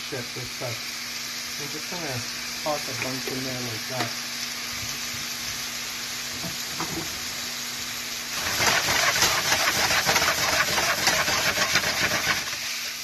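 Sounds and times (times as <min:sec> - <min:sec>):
chicken sizzling in oil: 0:00.0 - 0:13.0
stirring clicks and scrapes: 0:08.4 - 0:12.6.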